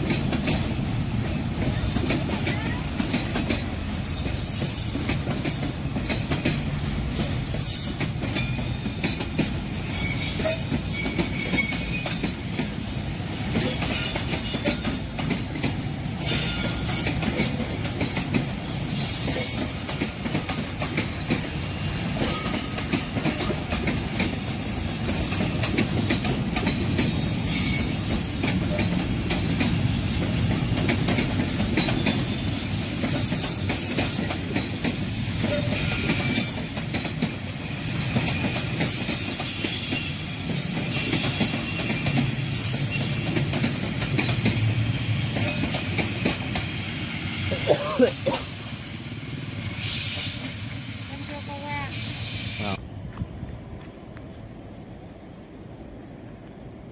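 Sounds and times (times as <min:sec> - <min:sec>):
wheels clacking over rail joints: 0:00.0 - 0:46.8
train rumbling past: 0:00.0 - 0:56.9
train wheels squealing: 0:00.4 - 0:05.9, 0:06.8 - 0:15.1, 0:16.1 - 0:18.0, 0:18.6 - 0:20.0, 0:21.7 - 0:23.6, 0:24.4 - 0:29.0, 0:31.4 - 0:34.4, 0:35.2 - 0:36.8, 0:37.6 - 0:47.7, 0:48.7 - 0:52.8.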